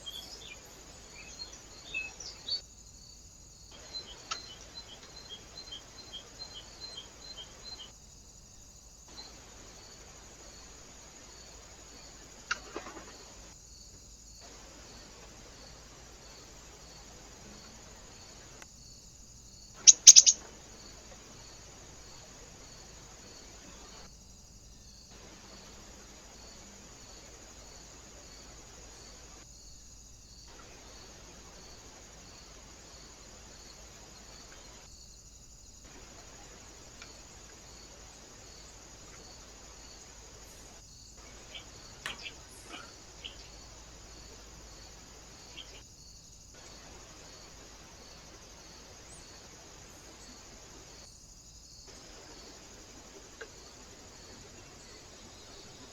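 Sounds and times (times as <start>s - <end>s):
insect chirping: 0.0s - 55.9s
steady hiss: 0.0s - 55.9s
sharp high bird calls: 19.8s - 20.4s.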